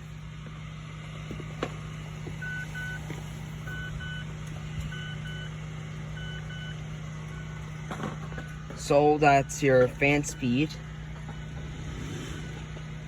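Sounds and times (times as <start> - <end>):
steady low hum: 0.0 - 13.0
car warning chime beeping: 2.4 - 11.6.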